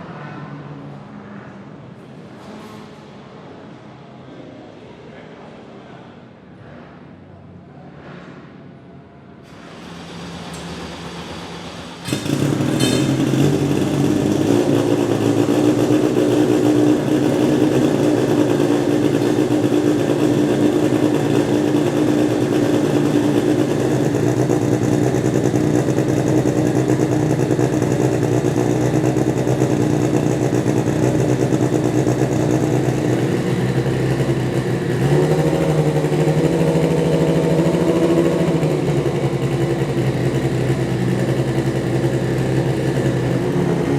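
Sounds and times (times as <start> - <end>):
race car engine idling: 9.5 - 43.9.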